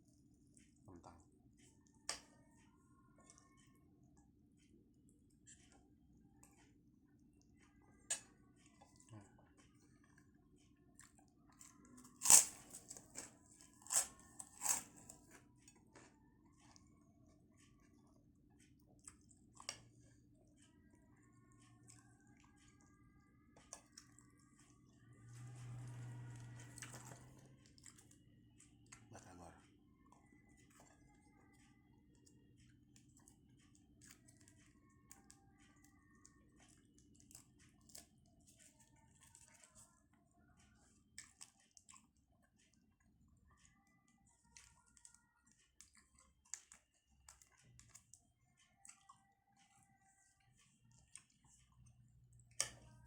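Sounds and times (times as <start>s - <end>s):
person chewing crunchy food: 11.0s - 16.8s, 25.4s - 28.2s
crunchy bites and chewing: 12.0s - 15.4s.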